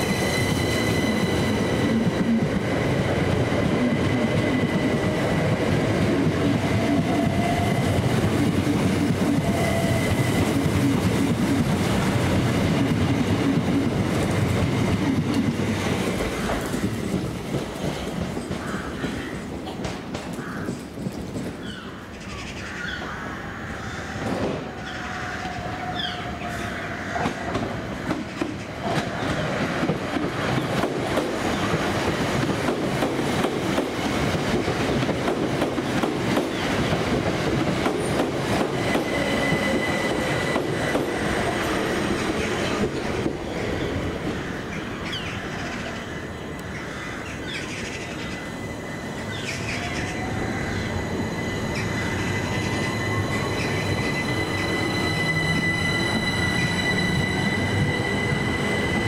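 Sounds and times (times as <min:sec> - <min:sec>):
steady high tone: 0:00.0 - 0:08.0, 0:47.8 - 0:59.0
train wheels clicking over rail joints: 0:27.2 - 0:43.6.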